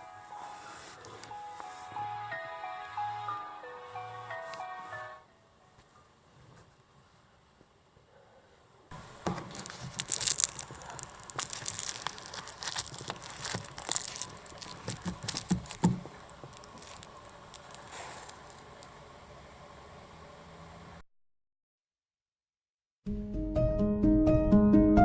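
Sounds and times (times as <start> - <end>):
crinkling and rustling: 8.9 - 19.0.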